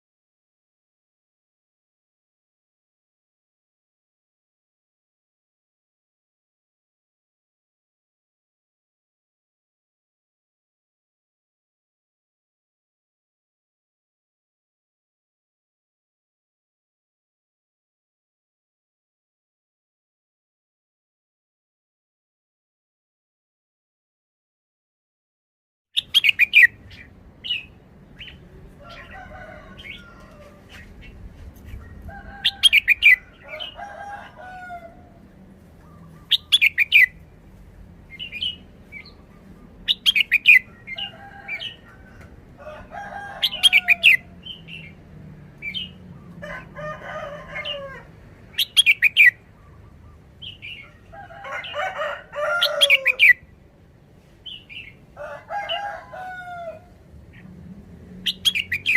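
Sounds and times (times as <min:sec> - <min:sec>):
bird chattering calls: 0:26.0 - 0:28.4, 0:35.9 - 0:37.2, 0:39.9 - 0:41.1
bird singing sharp phrases: 0:26.0 - 0:29.1, 0:35.7 - 0:37.2, 0:38.0 - 0:41.8, 0:48.5 - 0:51.1.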